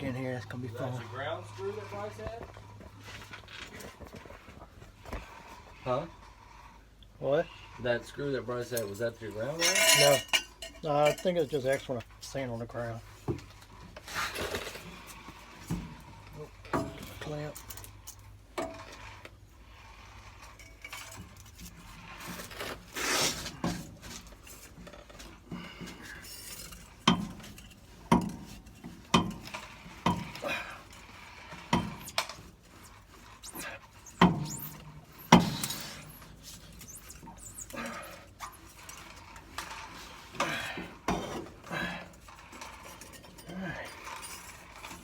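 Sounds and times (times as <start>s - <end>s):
scraping rustle: 0.0s - 45.0s
metal tools clinking: 8.8s - 12.3s, 24.3s - 45.0s.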